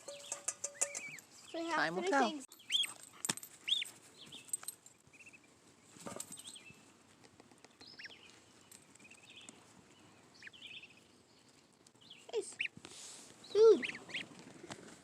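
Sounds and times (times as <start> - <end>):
goslings peeping: 0.0 - 1.7, 2.6 - 2.9, 3.6 - 3.9, 7.9 - 8.3, 10.0 - 11.1, 12.2 - 12.8, 13.5 - 14.5.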